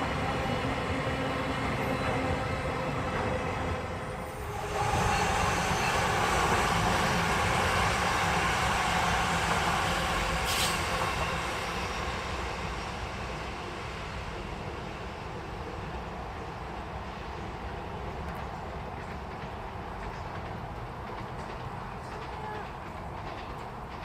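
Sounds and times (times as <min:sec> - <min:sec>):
train rumbling past: 0:00.0 - 0:24.0.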